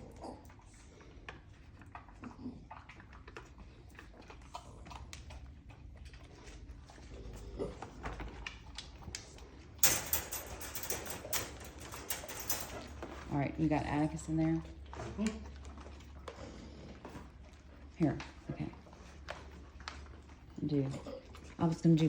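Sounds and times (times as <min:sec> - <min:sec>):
rattling clatter: 0:09.8 - 0:13.4.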